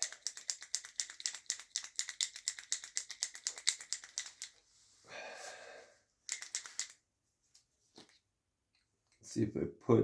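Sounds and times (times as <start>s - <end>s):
marker ball rattling: 0.0s - 4.6s, 6.3s - 7.0s.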